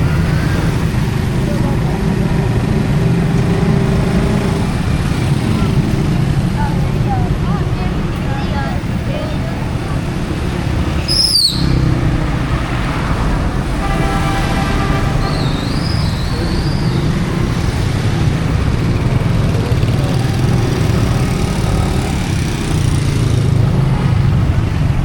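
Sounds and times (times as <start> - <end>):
traffic engines rumbling: 0.0 - 25.0
high wavering chirp: 11.1 - 11.8.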